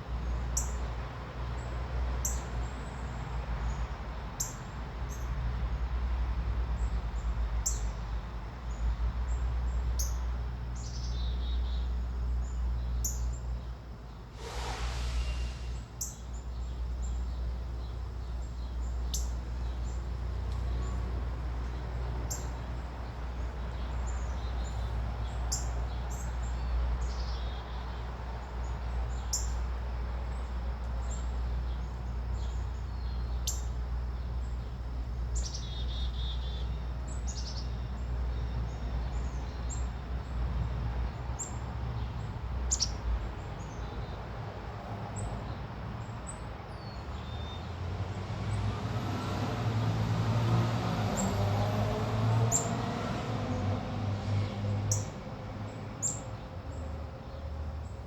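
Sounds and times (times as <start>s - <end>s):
small birds chirping: 0.2s - 1.0s, 1.6s - 58.0s.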